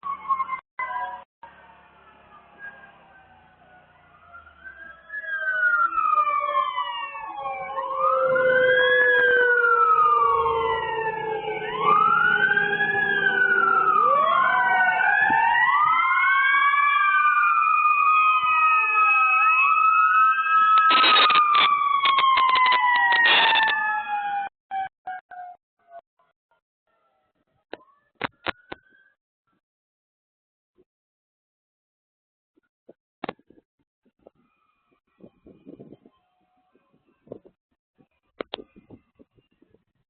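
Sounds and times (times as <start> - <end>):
emergency sirens wailing: 0.0 - 26.0
sharp rapid siren pulses: 0.0 - 26.0.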